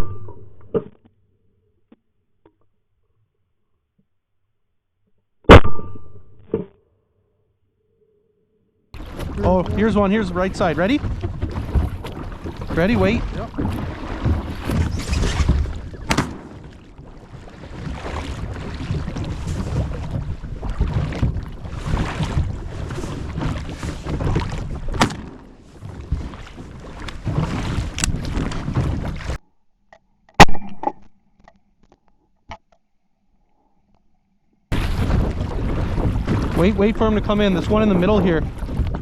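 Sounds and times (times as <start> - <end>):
sharp knocks: 9.0 - 16.8
wind buffeting microphone: 9.0 - 29.2, 34.7 - 39.0
choppy water: 9.0 - 29.4, 34.7 - 39.0.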